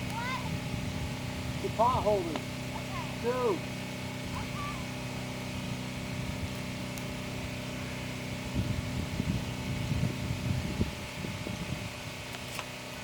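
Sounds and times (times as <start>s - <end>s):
steady engine hum: 0.0s - 13.0s
low rumbling bumps: 4.0s - 12.3s.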